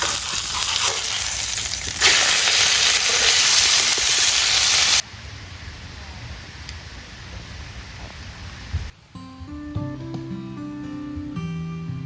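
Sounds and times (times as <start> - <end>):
steak sizzling in a frying pan: 0.0 - 5.0.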